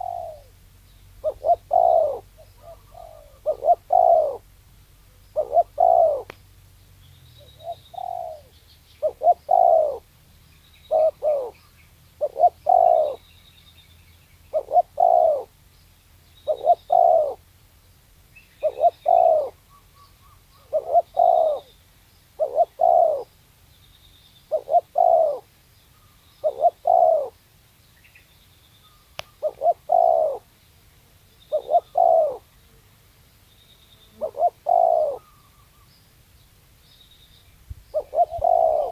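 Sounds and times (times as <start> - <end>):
dove cooing: 0.0 - 0.6, 1.2 - 4.5, 5.1 - 6.4, 7.4 - 10.2, 10.8 - 13.3, 14.5 - 15.6, 16.4 - 17.5, 18.6 - 23.4, 24.5 - 27.4, 29.2 - 30.5, 31.5 - 32.6, 34.1 - 35.9, 37.9 - 38.9
small birds chirping: 0.0 - 38.9.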